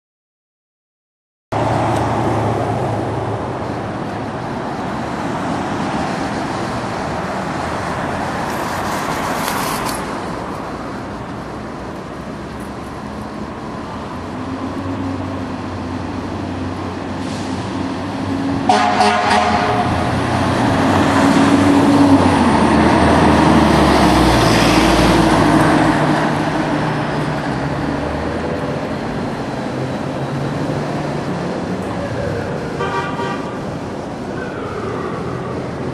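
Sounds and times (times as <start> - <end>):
diesel engines rumbling: 1.5 - 35.9
air horn blasts: 18.6 - 20.1, 32.8 - 33.6.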